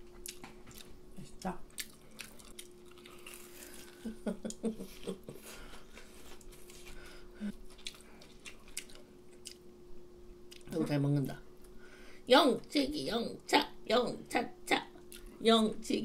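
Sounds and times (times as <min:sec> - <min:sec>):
people chewing food: 0:00.0 - 0:09.7, 0:10.4 - 0:10.8
faint steady hum: 0:00.0 - 0:16.0.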